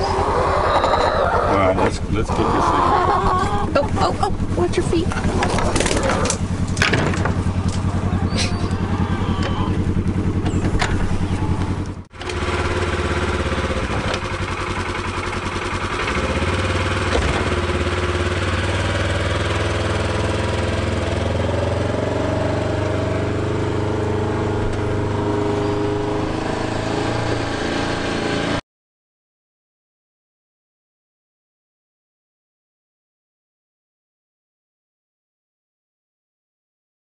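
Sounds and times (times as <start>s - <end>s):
utility vehicle engine running: 0.0s - 28.6s.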